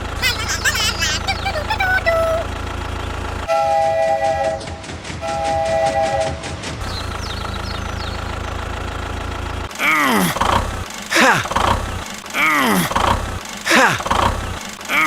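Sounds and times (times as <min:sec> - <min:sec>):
small engine idling: 0:00.0 - 0:03.5, 0:06.8 - 0:15.0.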